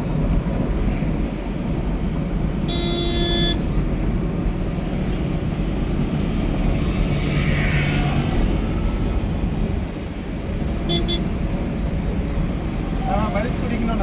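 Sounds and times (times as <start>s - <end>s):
vehicle road noise: 0.0s - 14.0s
car horn: 2.7s - 3.7s, 10.8s - 11.4s.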